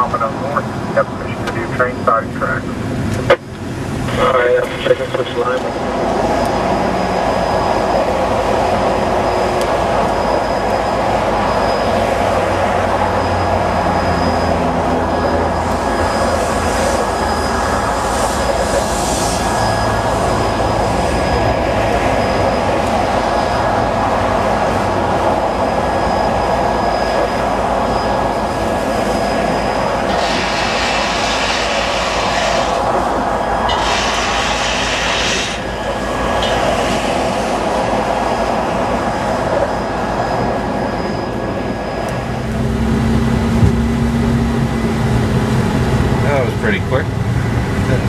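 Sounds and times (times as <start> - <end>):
diesel locomotive rumble: 0.0 - 48.0
train wheel noise: 0.0 - 48.0
hissing bursts: 15.6 - 21.2, 29.1 - 38.4.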